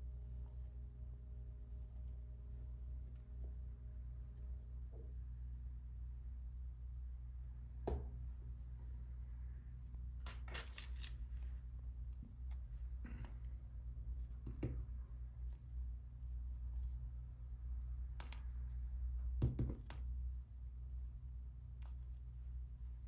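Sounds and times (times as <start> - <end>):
steady low hum: 0.0 - 23.0
small tool clicks and scrapes: 10.3 - 11.4.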